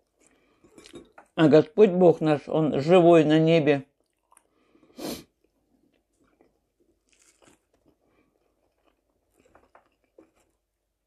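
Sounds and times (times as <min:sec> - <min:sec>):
faint chewing: 0:00.0 - 0:01.4, 0:04.0 - 0:11.0.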